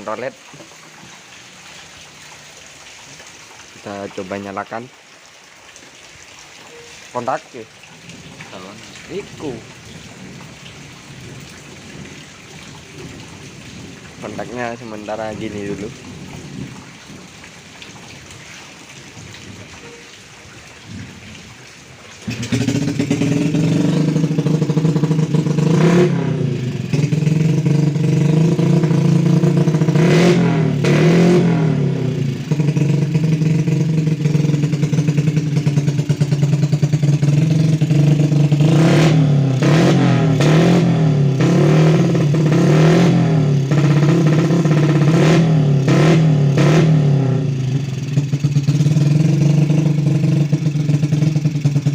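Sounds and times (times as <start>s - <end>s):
two-stroke motorcycle engine revving: 22.2s - 51.9s.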